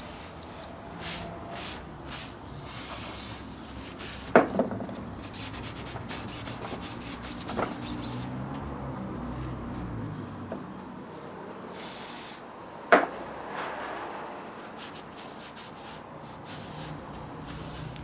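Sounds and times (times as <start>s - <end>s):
hand scrubbing rust off metal: 5.3s - 8.2s, 14.8s - 18.0s.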